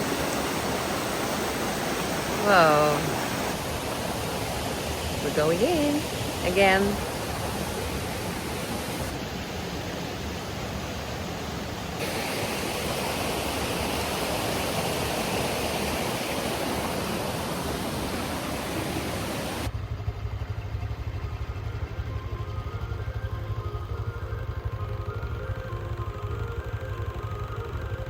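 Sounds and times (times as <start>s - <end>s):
waterfall roaring: 0.0s - 19.7s.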